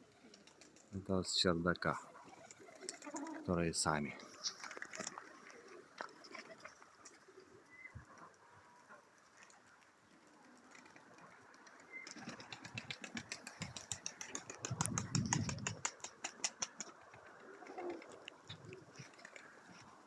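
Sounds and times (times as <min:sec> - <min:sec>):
pigeon wings flapping: 0:00.1 - 0:00.9, 0:02.1 - 0:03.5, 0:04.3 - 0:07.2, 0:10.4 - 0:20.0
rush of wind: 0:13.6 - 0:15.9.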